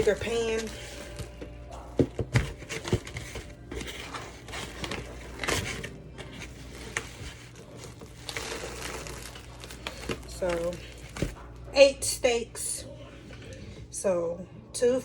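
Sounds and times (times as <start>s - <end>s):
rustling and crinkling: 0.0s - 11.7s.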